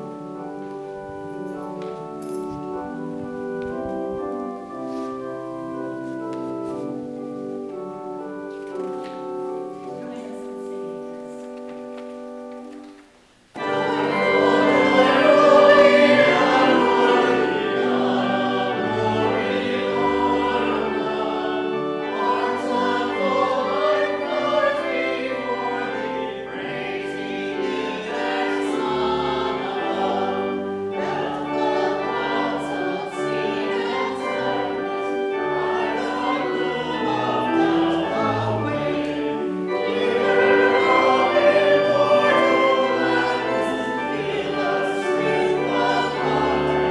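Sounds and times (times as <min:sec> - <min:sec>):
choir singing: 0:13.5 - 0:46.9.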